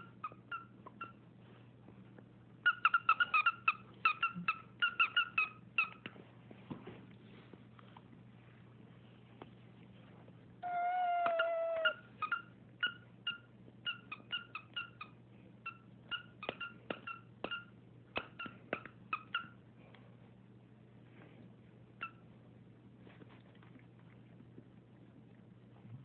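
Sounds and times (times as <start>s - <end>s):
cat meowing: 10.6s - 12.0s
cat chirping: 10.6s - 19.6s.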